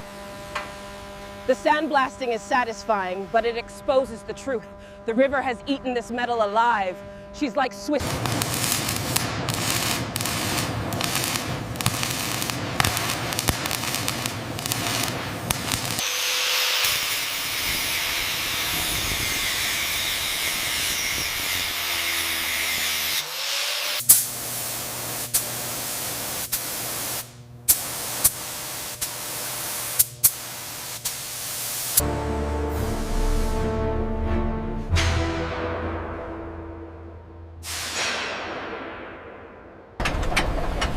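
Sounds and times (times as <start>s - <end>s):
sandblaster hissing: 8.0s - 32.0s, 37.6s - 38.4s.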